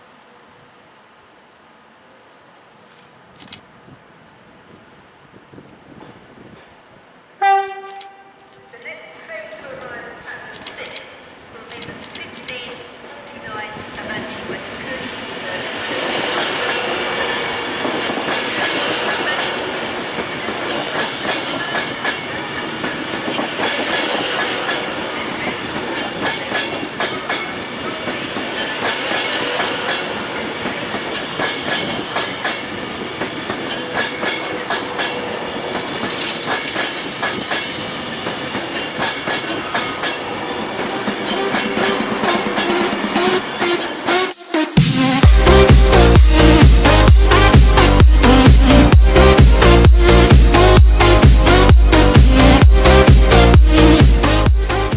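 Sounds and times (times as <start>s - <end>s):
train rumbling on track: 0.0s - 54.9s
wheels clicking over rail joints: 7.7s - 44.0s.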